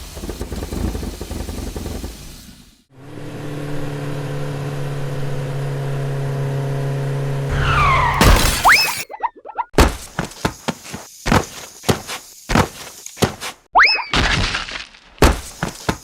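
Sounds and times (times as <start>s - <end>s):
loud hit: 7.5s - 9.0s
falling whistling glides: 7.5s - 9.1s
cartoon rough rumbling: 7.5s - 9.6s.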